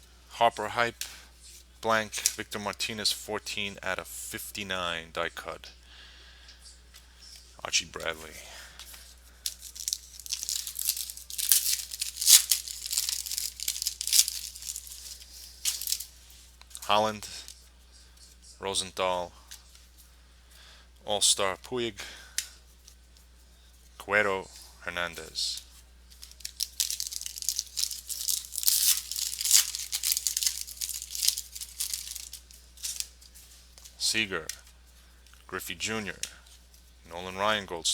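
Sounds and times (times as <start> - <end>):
wrapper tearing and crinkling: 9.4 - 16.1, 26.1 - 33.4.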